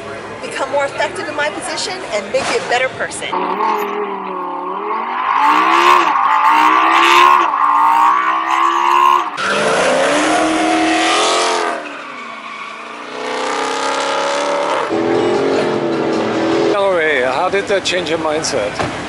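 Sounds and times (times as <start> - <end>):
car engine accelerating hard: 3.3 - 11.8
car engine revving: 3.3 - 17.2.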